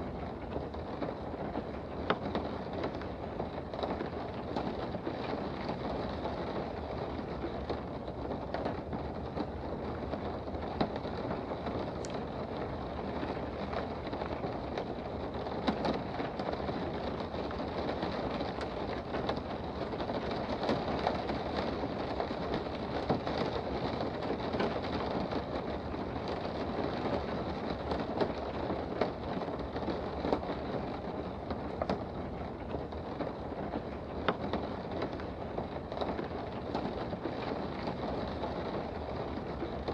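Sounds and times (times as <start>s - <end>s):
rain heard from indoors: 0.0s - 39.9s.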